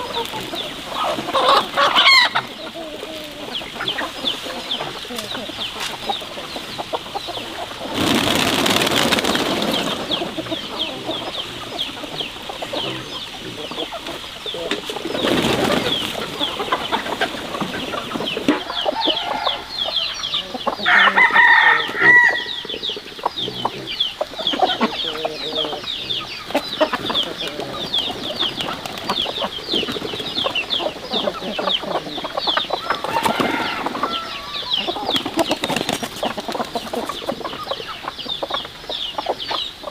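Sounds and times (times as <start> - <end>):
loud chicken call: 0.0 - 5.1, 15.2 - 28.8, 30.8 - 37.7
chickens clucking: 0.0 - 39.9.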